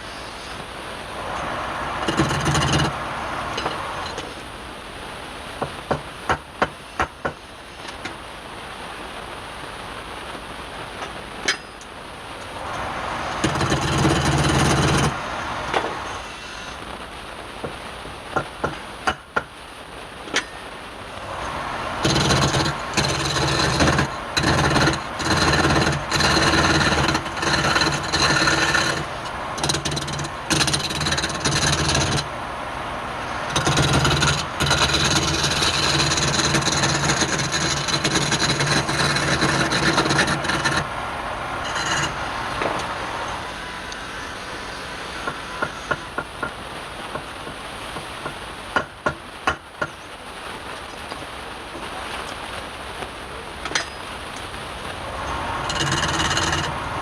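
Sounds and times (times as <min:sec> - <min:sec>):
lathe tool cutting spinning wood: 0:12.6 - 0:16.8, 0:21.2 - 0:45.9, 0:55.2 - 0:57.0.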